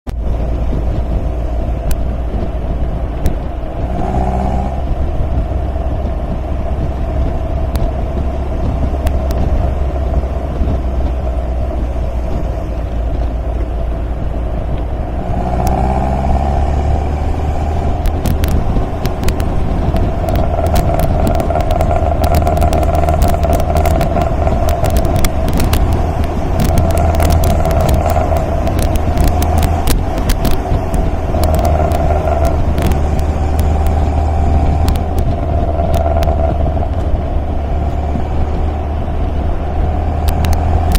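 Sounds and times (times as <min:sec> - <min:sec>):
sports car engine drone: 0:00.1 - 0:40.9
sharp clicks and taps: 0:07.7 - 0:07.9, 0:17.9 - 0:37.2, 0:40.2 - 0:40.9.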